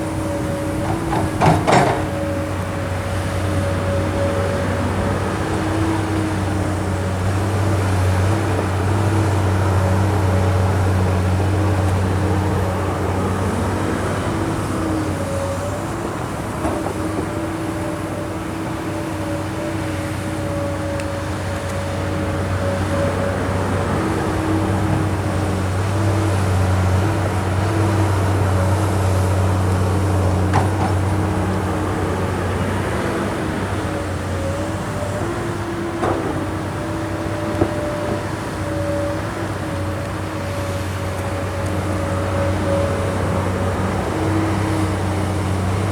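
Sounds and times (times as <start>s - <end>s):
excavator diesel engine with whine: 0.0s - 45.9s.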